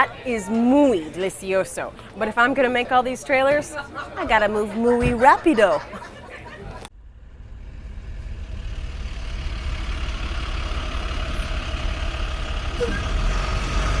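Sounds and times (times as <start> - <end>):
vehicle engine rumbling: 6.6 - 14.0.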